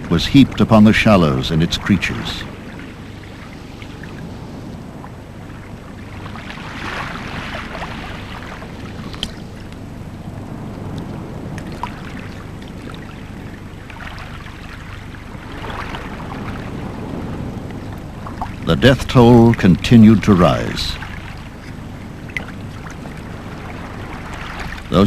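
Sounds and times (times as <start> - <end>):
small waves washing on shore: 0.0 - 25.0
faint small clicks: 9.1 - 9.8.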